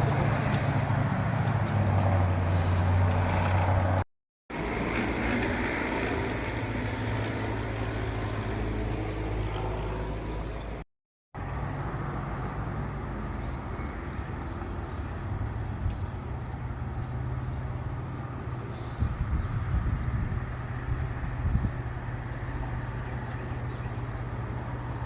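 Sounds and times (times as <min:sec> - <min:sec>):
road noise: 0:00.0 - 0:10.8, 0:11.4 - 0:25.0
vehicle engine hum: 0:00.0 - 0:10.8, 0:11.4 - 0:25.0.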